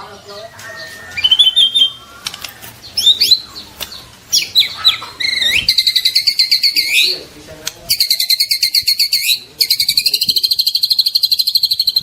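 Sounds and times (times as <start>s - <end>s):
bird singing whistled phrases: 0.4s - 2.0s, 4.3s - 7.1s, 7.9s - 12.0s.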